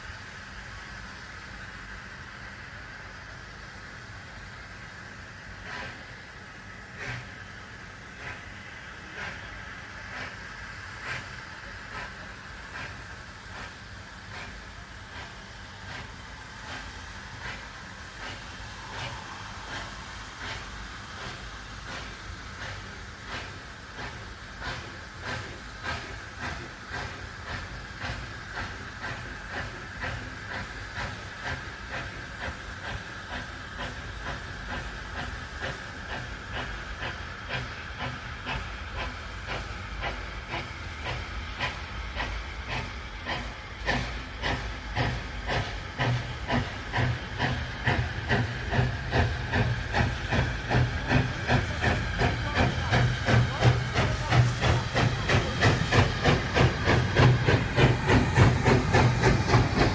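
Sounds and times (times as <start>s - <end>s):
hiss of steam: 0.0s - 59.9s
steam locomotive exhaust beats: 0.0s - 59.9s.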